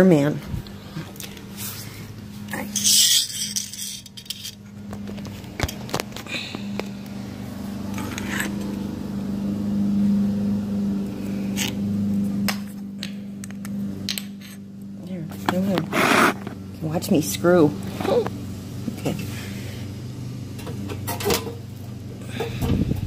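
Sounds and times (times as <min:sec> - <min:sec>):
steady low hum: 0:00.0 - 0:23.0
metal clicks and scrapes of tools: 0:02.6 - 0:04.6.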